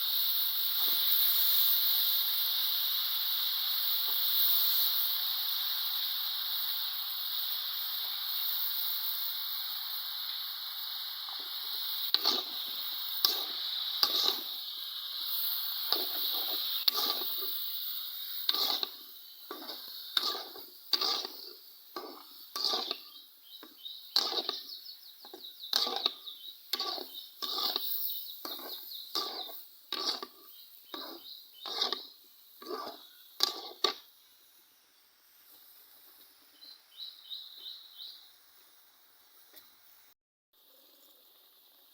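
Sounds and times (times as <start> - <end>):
food sizzling in a pan: 0.0 - 41.9
scraping against a pan: 11.3 - 14.6, 15.8 - 17.7, 18.4 - 34.0.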